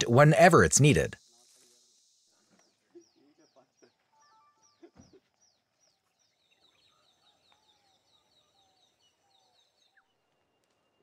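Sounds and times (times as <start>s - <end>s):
faint lower bird calls: 2.6s - 11.0s.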